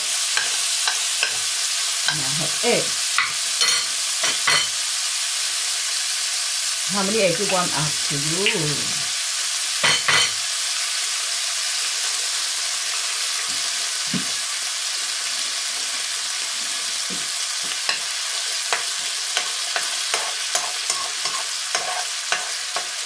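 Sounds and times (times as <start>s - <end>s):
food sizzling in a wok: 0.0s - 23.0s
metal spoon scraping a pan: 0.3s - 1.5s, 3.2s - 4.8s, 9.8s - 10.4s, 17.9s - 23.0s.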